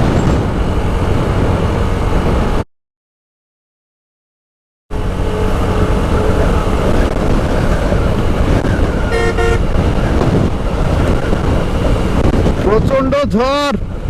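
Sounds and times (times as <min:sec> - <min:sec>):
wind buffeting microphone: 0:00.0 - 0:02.6, 0:05.0 - 0:14.0
motorcycle road noise: 0:00.0 - 0:02.7, 0:04.9 - 0:14.0
vehicle horn: 0:08.7 - 0:10.2.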